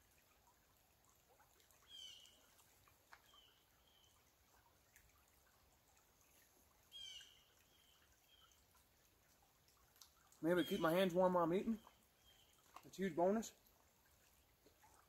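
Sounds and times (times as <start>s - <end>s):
small bird calling: 1.8s - 2.4s, 6.9s - 8.6s, 10.5s - 12.6s.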